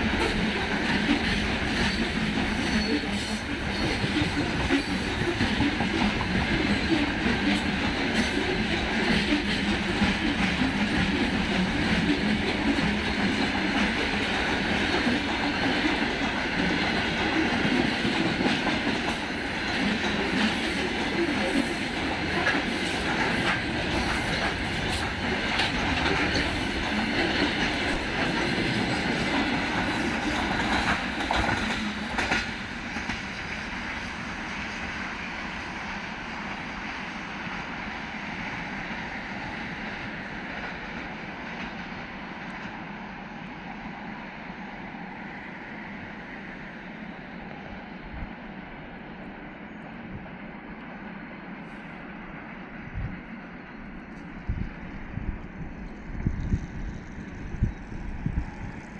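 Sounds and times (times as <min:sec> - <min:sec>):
freight train rolling past: 0:00.0 - 0:58.9
wheels clacking over rail joints: 0:03.9 - 0:33.5.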